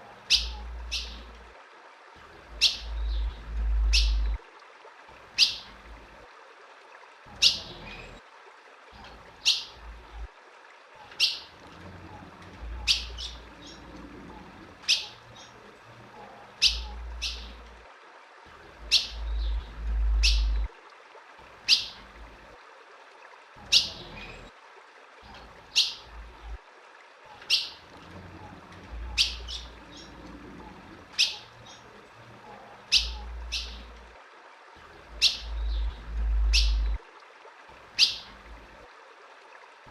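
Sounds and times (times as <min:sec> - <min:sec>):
bird chirps: 0:00.3 - 0:01.2, 0:12.8 - 0:13.8, 0:16.6 - 0:17.6, 0:18.9 - 0:20.7, 0:29.0 - 0:30.2, 0:32.9 - 0:33.9, 0:35.2 - 0:37.0
low rumbles: 0:02.4 - 0:04.4, 0:18.7 - 0:20.7, 0:35.0 - 0:37.0.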